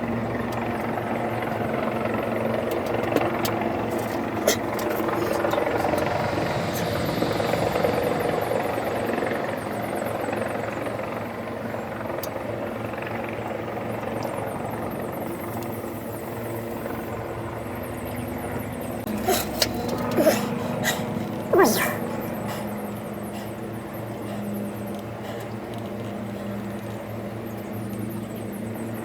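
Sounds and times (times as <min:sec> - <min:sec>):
diesel engine idling: 0:00.0 - 0:09.8, 0:15.3 - 0:27.6.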